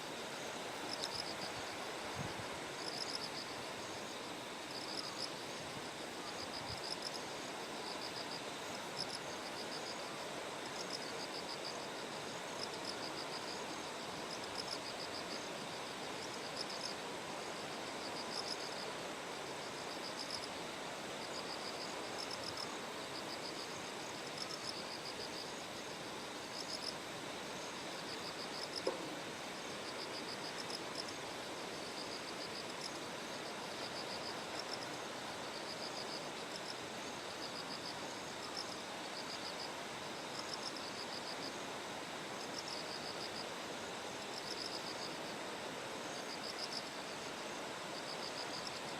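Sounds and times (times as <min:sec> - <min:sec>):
crickets chirping: 0:00.0 - 0:48.9.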